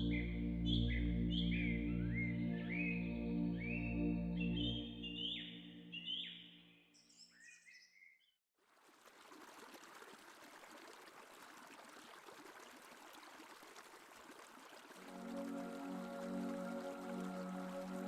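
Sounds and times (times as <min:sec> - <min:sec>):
music with gliding whistle notes: 0:00.0 - 0:06.6, 0:15.0 - 0:18.0.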